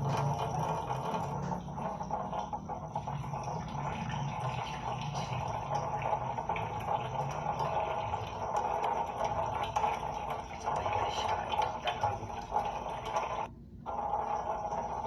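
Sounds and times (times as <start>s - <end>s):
water running and splashing: 0.0s - 13.5s.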